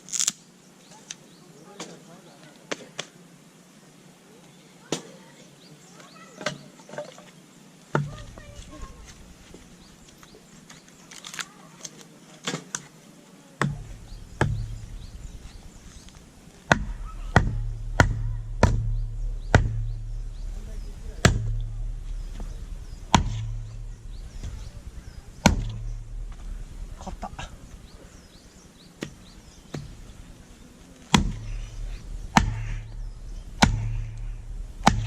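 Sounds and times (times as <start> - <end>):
firewood being split: 0.0 - 0.4, 7.9 - 12.9, 13.6 - 35.0.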